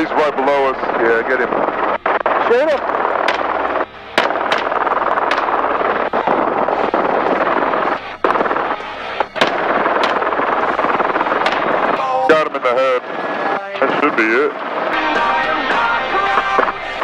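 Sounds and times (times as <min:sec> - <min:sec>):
helicopter rotor and engine: 0:00.0 - 0:12.0
rifle shots: 0:02.2 - 0:08.5, 0:09.4 - 0:11.9.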